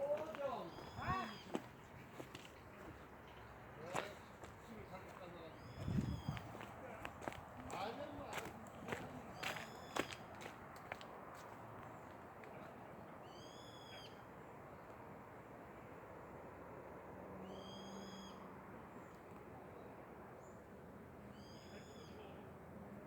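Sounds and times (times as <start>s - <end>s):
bird calls high and clear: 0.4s - 1.7s, 5.6s - 6.6s, 9.4s - 10.2s, 13.2s - 14.2s, 17.4s - 18.5s, 21.3s - 22.2s.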